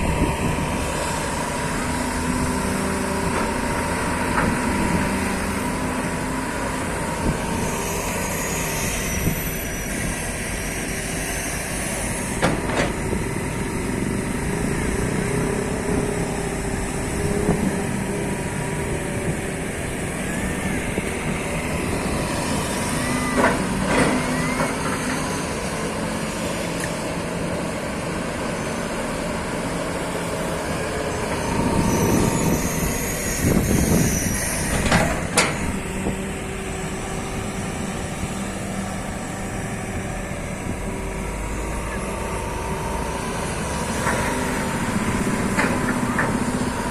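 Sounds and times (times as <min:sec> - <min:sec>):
excavator diesel engine running: 0:00.0 - 0:46.9
brief squeals: 0:07.6 - 0:12.3, 0:22.8 - 0:25.6, 0:31.3 - 0:35.2.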